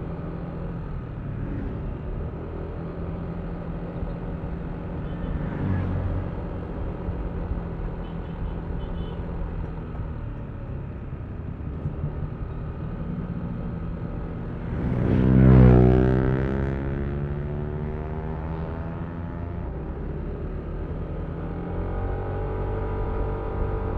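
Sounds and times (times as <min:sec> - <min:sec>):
road and wind noise: 0:00.0 - 0:23.9
louder passing engine: 0:14.6 - 0:19.6.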